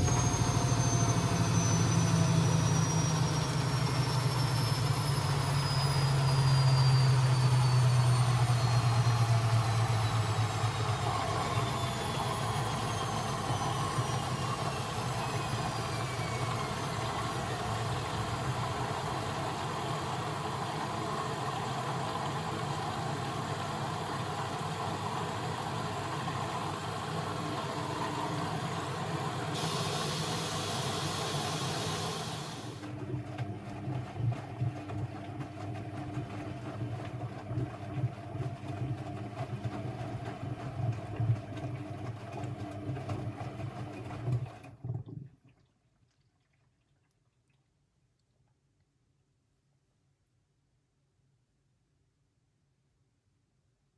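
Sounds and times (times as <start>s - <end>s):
washing machine motor winding down: 0.0s - 44.8s
hiss: 29.6s - 32.8s.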